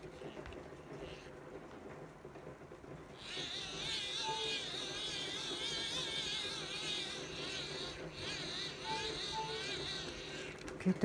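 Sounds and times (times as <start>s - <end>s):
hand-crank dynamo whining: 3.0s - 11.0s.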